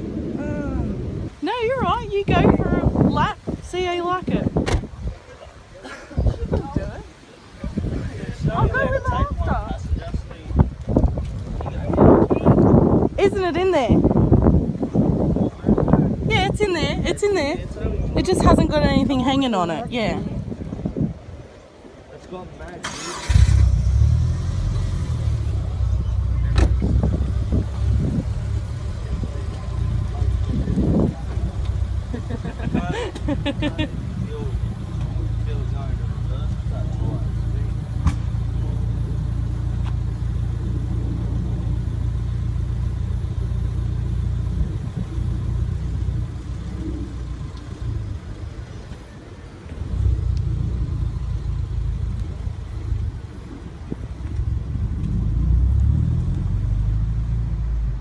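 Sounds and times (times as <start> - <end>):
car engine starting and running: 22.6 - 58.0.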